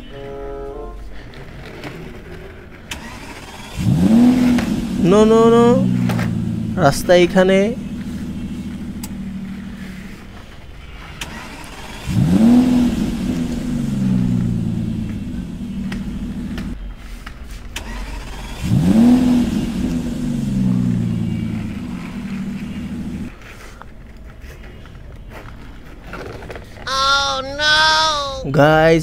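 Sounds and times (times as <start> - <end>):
toy car engine revving: 1.3 - 10.2, 11.0 - 16.8, 17.8 - 23.4.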